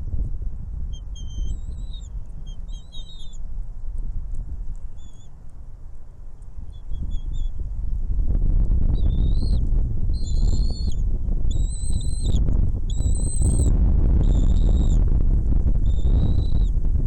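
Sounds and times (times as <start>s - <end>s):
bird whistling high notes: 1.0s - 3.4s.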